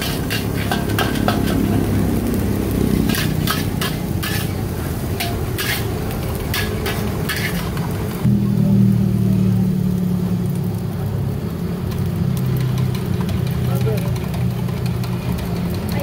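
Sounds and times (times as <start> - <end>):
metal spatula clanging on wok: 0.0 - 2.4, 3.0 - 7.8.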